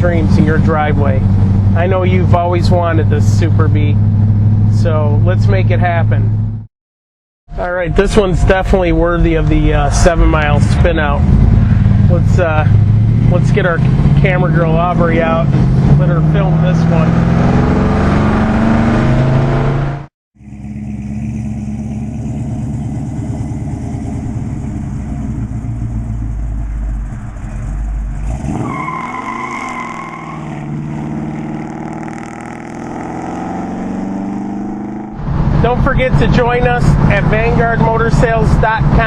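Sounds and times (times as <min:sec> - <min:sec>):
car engine running: 0:07.5 - 0:28.9.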